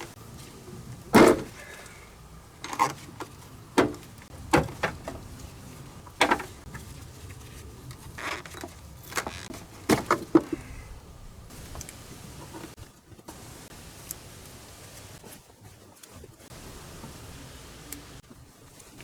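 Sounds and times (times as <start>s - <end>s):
tools and metal parts clattering: 0.0s - 2.0s, 2.6s - 10.7s.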